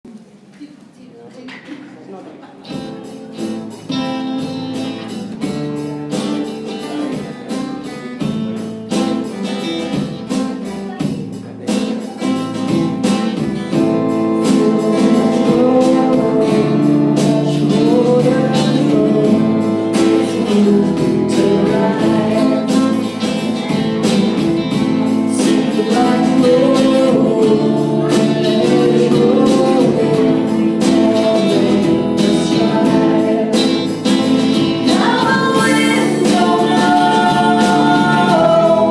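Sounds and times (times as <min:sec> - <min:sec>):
strummed guitar: 0:02.6 - 0:38.9
person singing: 0:13.7 - 0:38.9.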